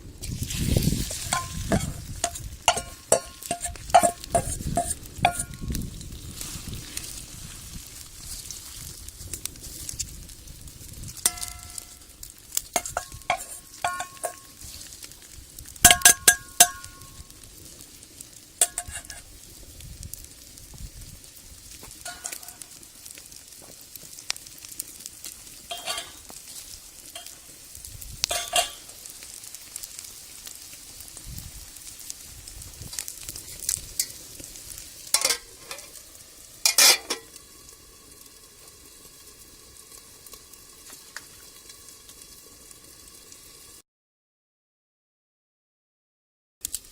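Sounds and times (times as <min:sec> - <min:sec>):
food sizzling in a wok: 0:00.0 - 0:43.8, 0:46.6 - 0:46.9
utensil clanking against wok: 0:00.6 - 0:06.1, 0:11.2 - 0:12.0, 0:12.7 - 0:14.7, 0:15.8 - 0:17.2, 0:18.6 - 0:19.3, 0:22.0 - 0:22.8, 0:25.7 - 0:26.4, 0:27.0 - 0:27.5, 0:28.3 - 0:29.0, 0:35.0 - 0:36.0, 0:36.6 - 0:37.4.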